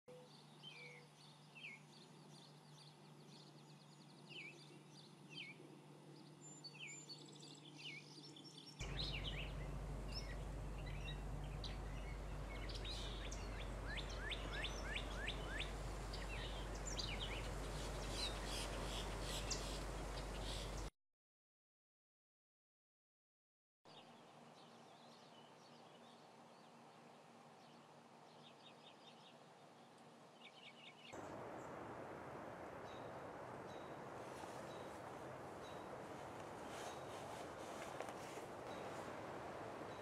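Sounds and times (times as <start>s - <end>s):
songbirds chirping: 0.1s - 20.9s, 23.9s - 40.0s
background hiss: 8.8s - 20.9s, 26.2s - 40.0s
steady low hum: 8.8s - 20.9s, 31.2s - 40.0s.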